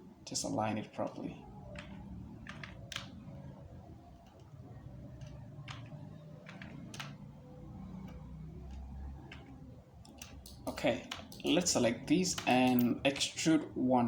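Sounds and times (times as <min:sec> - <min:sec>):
mouse and keyboard clicks: 0:04.2 - 0:07.2, 0:08.0 - 0:11.6.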